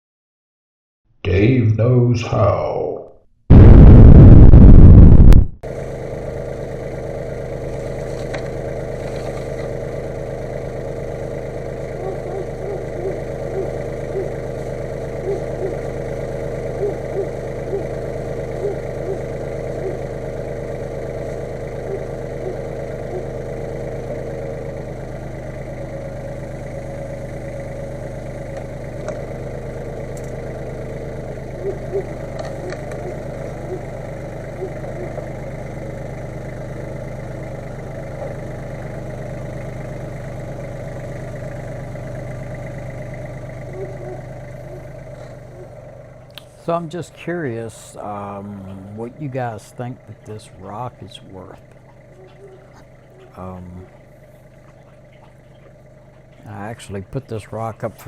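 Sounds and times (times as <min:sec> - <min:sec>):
loud burst of noise: 0:03.5 - 0:06.9
engine idling: 0:05.6 - 0:58.0.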